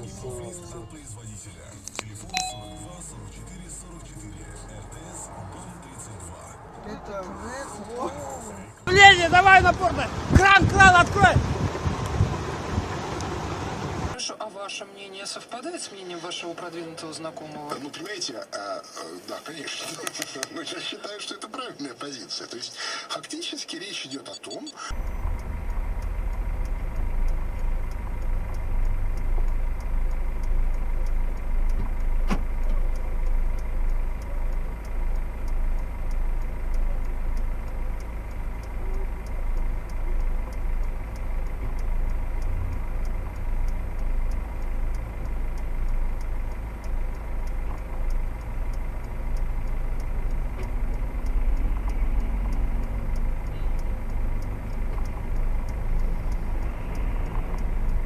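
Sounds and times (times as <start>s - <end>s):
vehicle engine and road rumble: 0.0s - 14.2s, 24.9s - 58.0s
faint even ticking: 24.3s - 58.0s.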